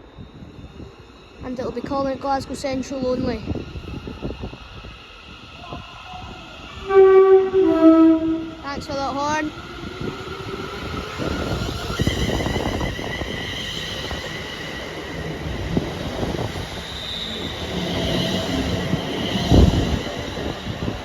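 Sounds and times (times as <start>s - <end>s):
train rumble: 0.0s - 21.0s
train wheels squealing on rails: 0.0s - 21.0s.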